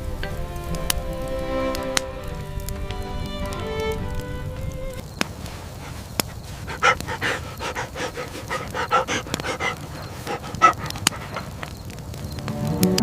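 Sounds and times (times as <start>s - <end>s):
sharp clicks: 0.2s - 13.0s
dog panting: 5.4s - 11.8s.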